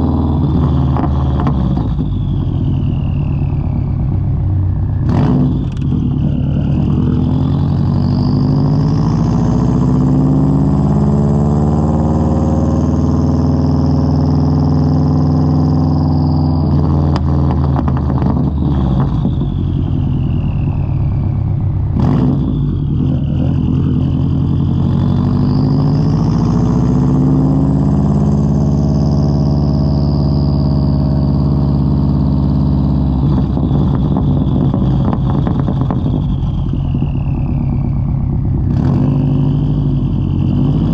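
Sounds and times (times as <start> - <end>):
car engine revving: 0.0 - 40.9
turbo whine: 0.0 - 40.9
exhaust crackles and pops: 0.3 - 4.1, 4.7 - 8.2, 16.6 - 20.6, 33.0 - 40.9.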